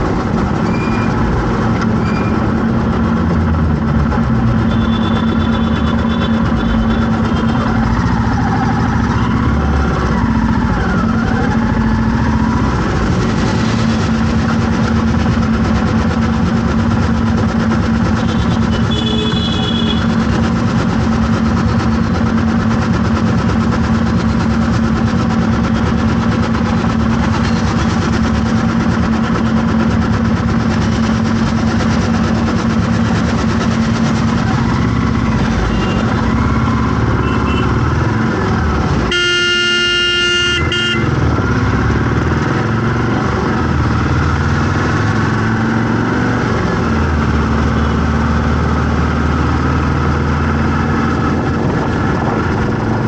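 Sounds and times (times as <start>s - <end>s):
vehicle engines running: 0.0s - 53.0s
vehicle horn blast: 4.7s - 7.6s, 18.2s - 20.1s, 35.7s - 36.1s, 37.2s - 37.8s, 39.1s - 41.2s.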